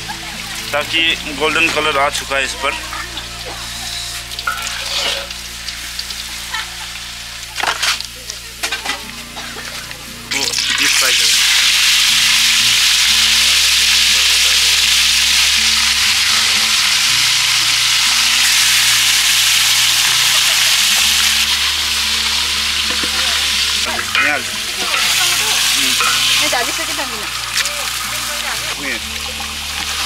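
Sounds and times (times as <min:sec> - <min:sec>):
meat deep-frying in oil: 0:00.0 - 0:30.0
wooden spatula scraping pot: 0:04.6 - 0:05.3.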